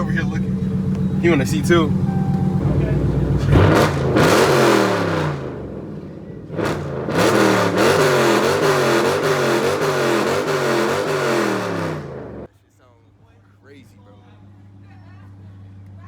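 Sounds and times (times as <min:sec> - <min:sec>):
car engine revving: 0:00.0 - 0:12.5.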